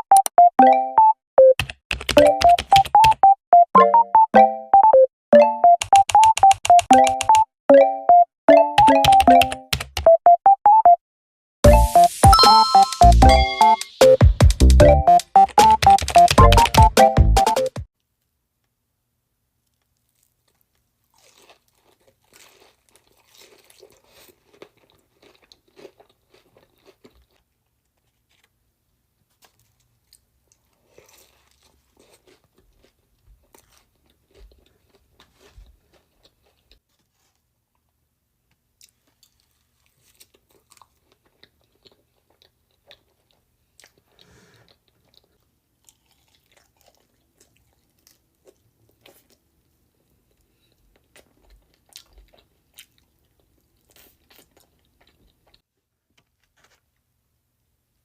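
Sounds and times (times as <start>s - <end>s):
crunchy food chewing: 19.6s - 28.6s, 29.2s - 37.4s, 38.8s - 55.6s.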